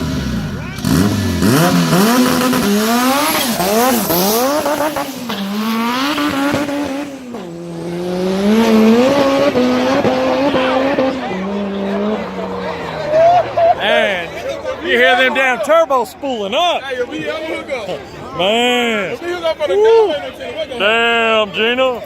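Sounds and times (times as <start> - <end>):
car engine revving: 0.0 - 14.8.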